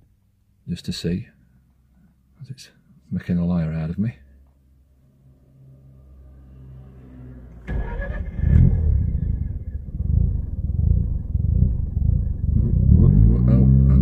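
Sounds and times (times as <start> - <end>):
low hum: 4.2 - 14.0
engine starter cranking: 7.6 - 9.5.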